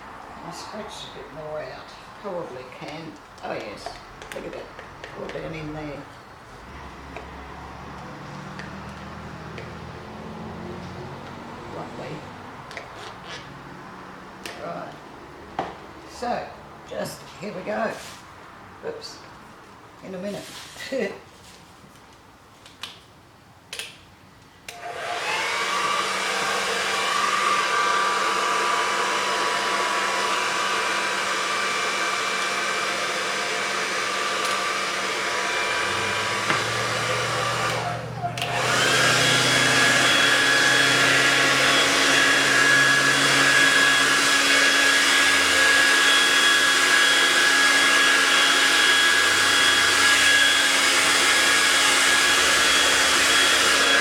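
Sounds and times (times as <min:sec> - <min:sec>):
hair dryer whining: 0:00.0 - 0:18.2, 0:24.7 - 0:54.0.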